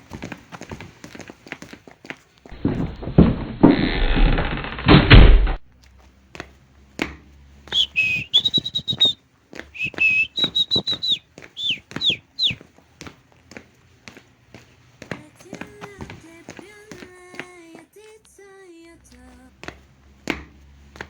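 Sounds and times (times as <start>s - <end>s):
heavy thuds: 2.5s - 3.8s
high whistle notes: 7.7s - 9.2s, 9.8s - 12.6s.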